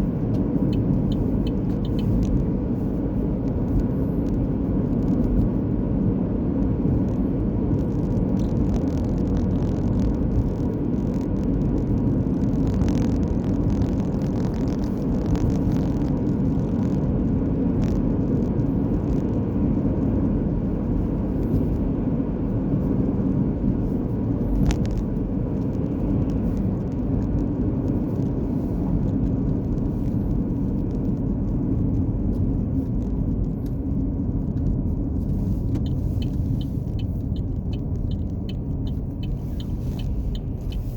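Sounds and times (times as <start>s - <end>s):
car road rumble: 0.0s - 40.9s
faint ticks: 0.7s - 2.4s, 34.6s - 40.9s.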